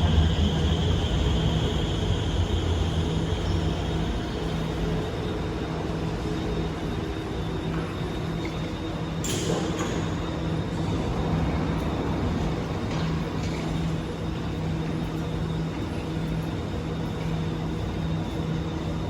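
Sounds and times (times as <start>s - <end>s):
electric train humming: 0.0s - 9.2s, 10.0s - 19.0s.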